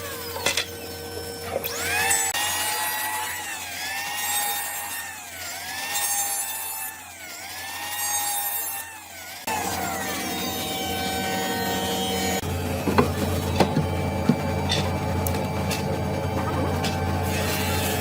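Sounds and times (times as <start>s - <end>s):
power tool cutting wood: 0.0s - 18.0s
motor tone with falling glides: 9.5s - 18.0s.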